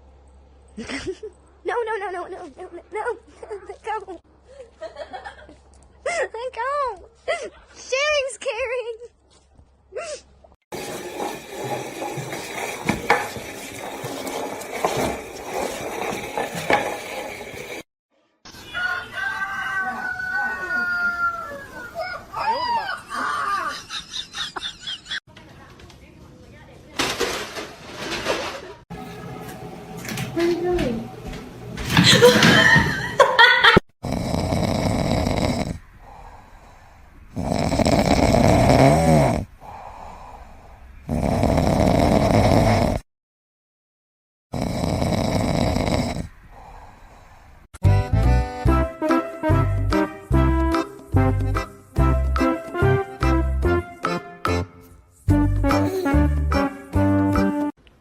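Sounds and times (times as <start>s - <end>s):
pet snoring loudly: 34.0s - 43.0s, 44.5s - 46.9s.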